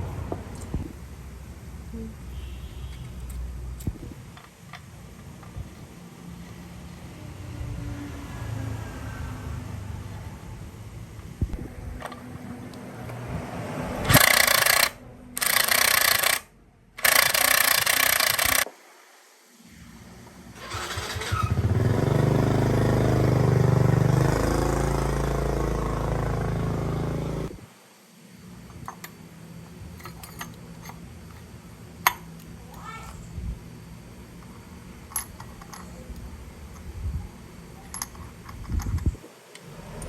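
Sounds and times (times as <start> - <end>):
motor running: 14.0 - 16.4, 23.1 - 27.6.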